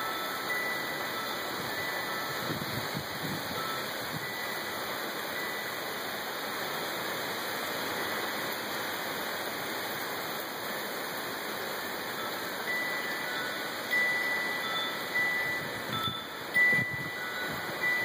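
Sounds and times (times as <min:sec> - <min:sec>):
faint wind chime tones: 0:00.0 - 0:06.0, 0:12.1 - 0:18.0
heavy rain falling: 0:00.0 - 0:18.0.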